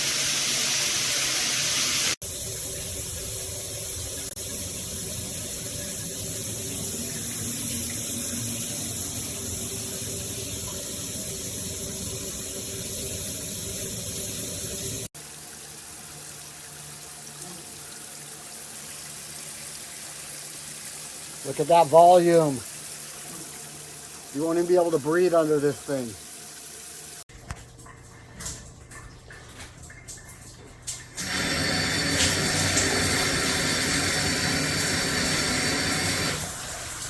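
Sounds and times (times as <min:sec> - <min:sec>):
water pouring from shower head: 0:18.6 - 0:27.2, 0:29.3 - 0:37.0.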